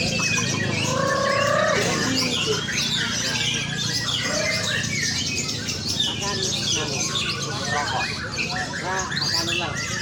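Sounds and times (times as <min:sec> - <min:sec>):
birds singing whistles and chirps: 0:00.0 - 0:10.0
low background murmur: 0:00.0 - 0:10.0.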